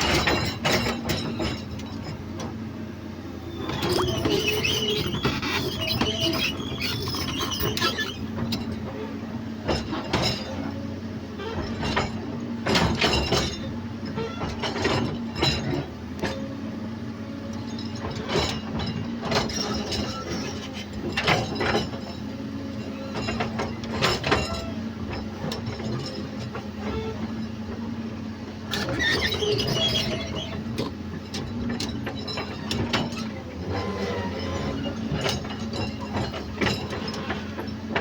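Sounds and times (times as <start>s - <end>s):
excavator diesel engine running: 0.0s - 38.0s
metallic clanks and knocks: 34.4s - 38.0s.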